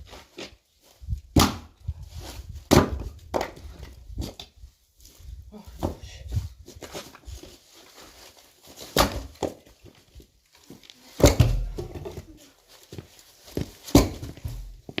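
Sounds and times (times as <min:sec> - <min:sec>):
axe chopping firewood: 0:01.3 - 0:01.8, 0:02.7 - 0:03.6, 0:08.9 - 0:09.6, 0:11.2 - 0:12.2, 0:13.9 - 0:14.6.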